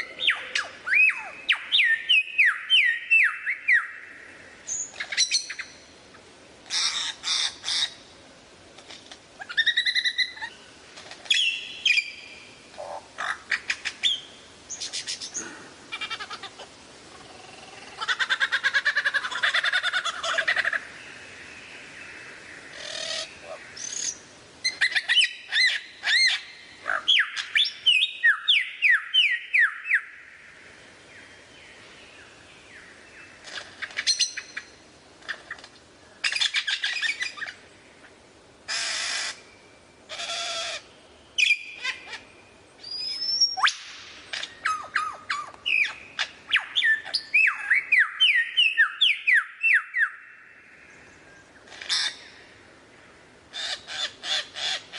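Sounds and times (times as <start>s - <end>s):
lyrebird singing: 0.0s - 5.9s, 9.4s - 10.6s, 11.2s - 21.0s, 21.8s - 30.2s, 31.7s - 35.6s, 38.7s - 52.4s.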